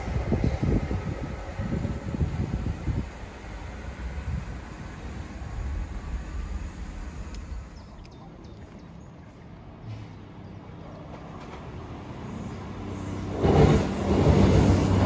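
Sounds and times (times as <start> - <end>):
wind rumble on microphone: 0.0 - 8.9
diesel train approaching: 0.0 - 15.0.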